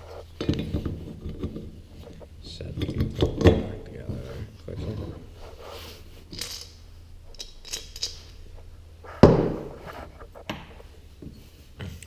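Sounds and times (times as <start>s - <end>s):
metal parts clinking: 6.3s - 8.4s.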